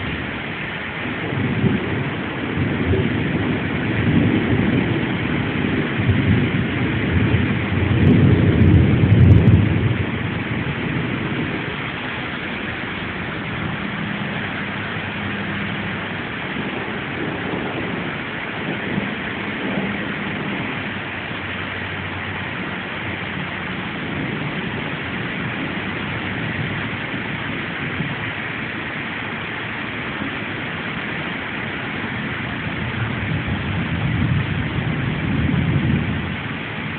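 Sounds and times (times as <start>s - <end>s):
low rumble: 0.0s - 36.9s
steady rain falling: 0.0s - 36.9s.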